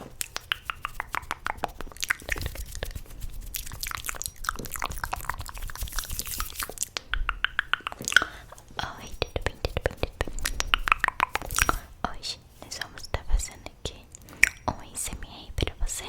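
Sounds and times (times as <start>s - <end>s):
lip smacks: 0.0s - 11.9s
wet tongue clicks: 0.2s - 11.8s.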